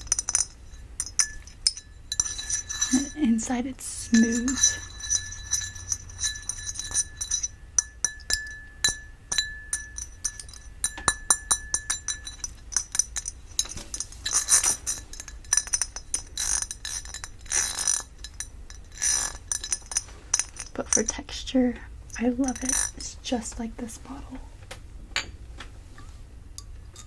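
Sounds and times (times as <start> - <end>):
tapping on ringing glass lid: 4.2 - 13.4
scratching on ridged glass: 12.7 - 20.9.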